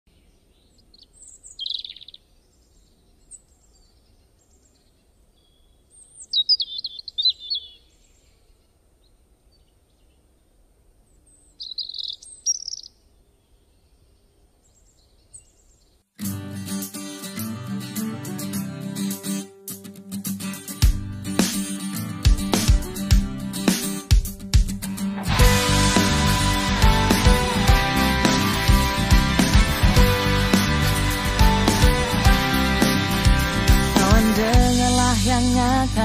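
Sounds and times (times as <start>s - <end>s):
birds twittering: 0.2s - 10.3s, 11.1s - 16.0s.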